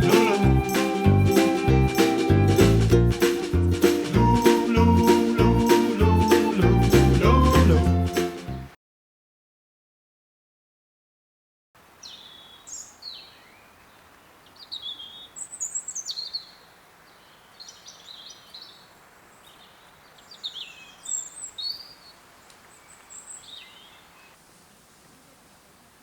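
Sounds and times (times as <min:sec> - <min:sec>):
faint background hiss: 0:11.8 - 0:26.0
birds chirping and warbling: 0:12.0 - 0:24.4.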